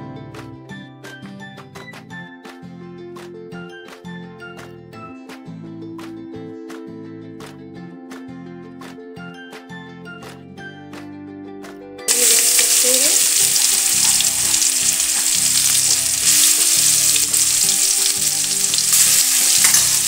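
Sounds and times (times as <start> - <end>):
background music: 0.0 - 20.0
paste sizzling in hot oil: 12.1 - 20.0.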